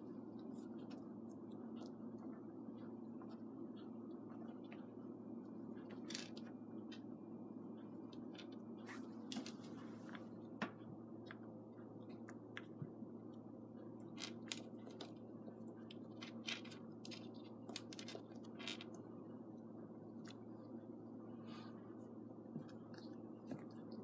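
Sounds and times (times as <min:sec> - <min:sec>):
steady low hum: 0:00.0 - 0:24.0
small clicks and scratching: 0:14.0 - 0:19.1.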